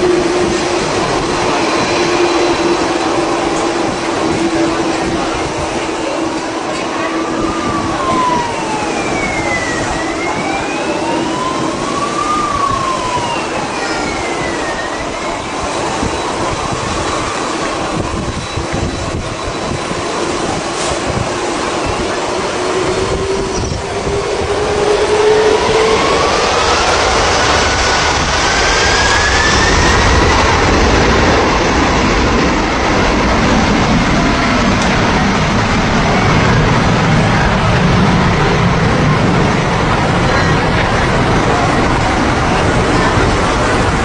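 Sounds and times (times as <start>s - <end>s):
aircraft engine droning: 0.0s - 44.0s
whistling tones gliding: 0.8s - 3.8s, 4.4s - 20.2s, 21.6s - 31.4s.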